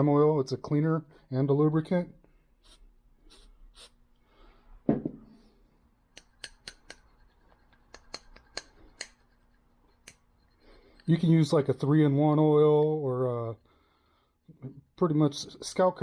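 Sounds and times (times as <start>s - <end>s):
dull knock: 4.9s - 5.2s.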